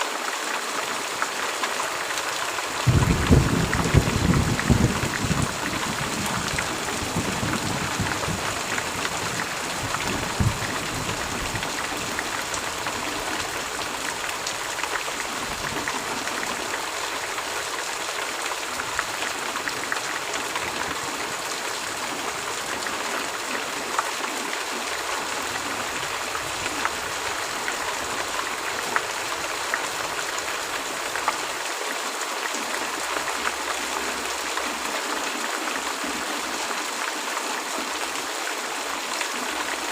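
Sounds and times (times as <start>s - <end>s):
heavy rain hissing: 0.0s - 39.9s
low rumble of thunder: 2.8s - 12.4s
raindrops ticking: 2.8s - 17.4s.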